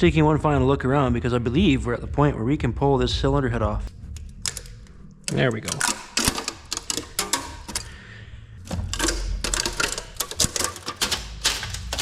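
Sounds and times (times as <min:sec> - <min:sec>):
metallic clicks of tools and parts: 0:03.8 - 0:08.0, 0:08.6 - 0:12.0.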